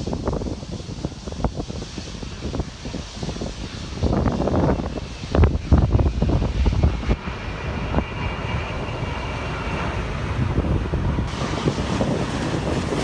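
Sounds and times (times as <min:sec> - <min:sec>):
jet engines whining: 0:00.0 - 0:13.0
wind buffeting microphone: 0:00.0 - 0:13.0.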